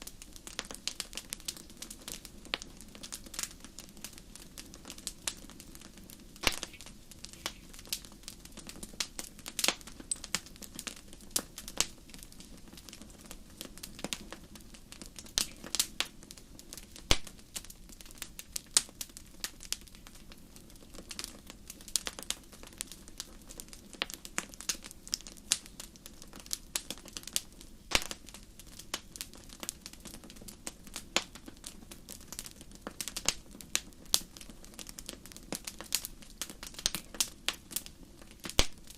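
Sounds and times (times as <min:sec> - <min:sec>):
campfire crackling and popping: 0:00.0 - 0:38.9
low rumble of flames: 0:00.0 - 0:38.9
loud wood snaps: 0:06.4 - 0:07.6, 0:27.9 - 0:28.2.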